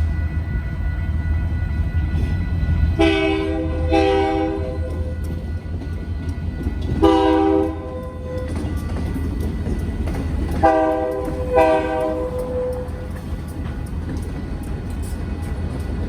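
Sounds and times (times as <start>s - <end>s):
low rumble of train: 0.0s - 16.0s
locomotive air horn: 3.0s - 5.2s, 7.0s - 8.6s, 10.6s - 13.2s.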